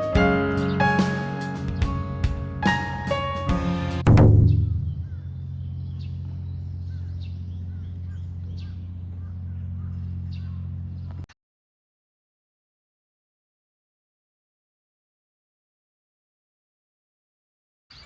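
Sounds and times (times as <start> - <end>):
sudden loud bump: 1.7 - 5.4
low mechanical hum: 4.0 - 11.3
small birds chirping: 4.5 - 11.3.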